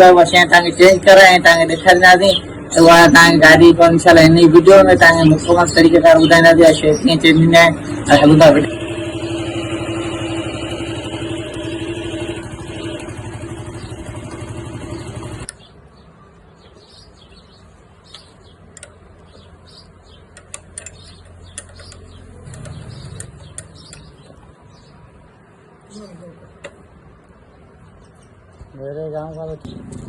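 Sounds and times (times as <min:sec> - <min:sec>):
motorcycle engine running: 0:01.0 - 0:15.5, 0:19.3 - 0:24.4
faint bird chirps: 0:14.9 - 0:26.7
light clicks: 0:18.1 - 0:19.4.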